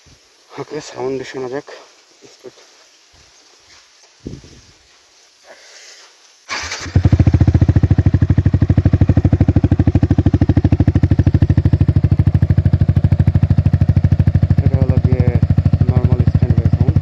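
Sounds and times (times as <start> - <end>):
motorcycle engine starting and idling: 6.5 - 17.0.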